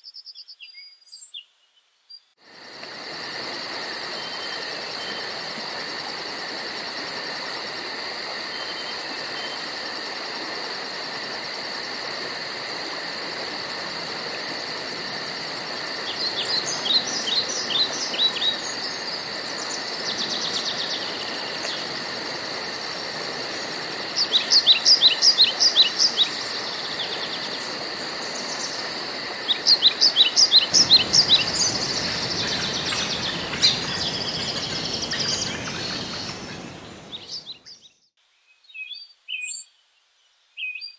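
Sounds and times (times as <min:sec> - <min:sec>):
songbird singing: 0:00.0 - 0:02.4, 0:16.0 - 0:22.0, 0:23.6 - 0:40.9
insect chirring: 0:11.6 - 0:37.5.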